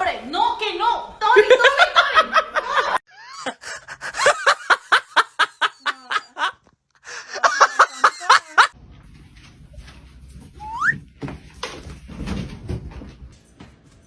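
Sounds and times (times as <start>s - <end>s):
person laughing hard: 2.2s - 8.7s
short rising squeak: 10.6s - 11.0s.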